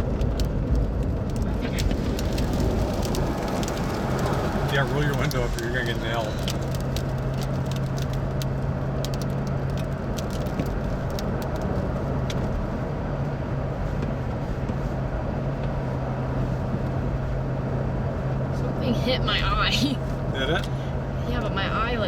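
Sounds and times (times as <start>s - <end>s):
engine and road drone: 0.0s - 22.0s
wind rush: 0.6s - 7.3s.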